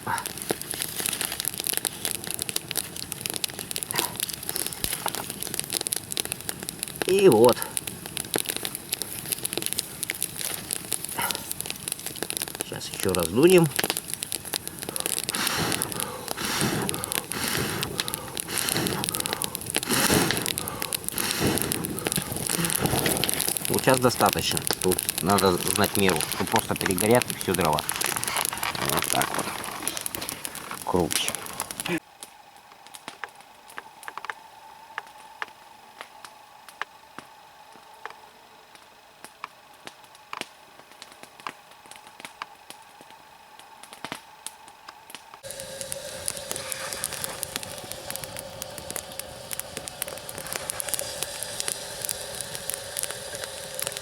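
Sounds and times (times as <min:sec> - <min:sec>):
person blowing on fire: 0:00.0 - 0:32.0, 0:45.4 - 0:54.0
burning wood crackling: 0:00.0 - 0:54.0.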